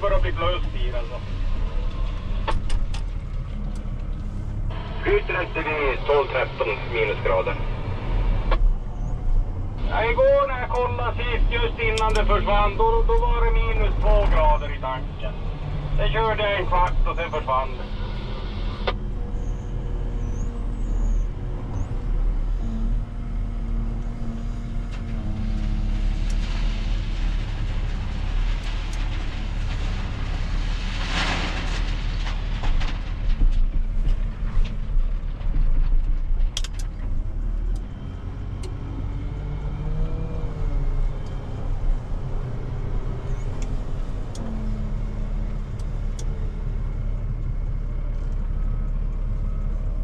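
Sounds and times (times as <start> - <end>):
diesel machinery engine running: 0.0 - 50.0
gravel loading into truck: 24.9 - 36.5.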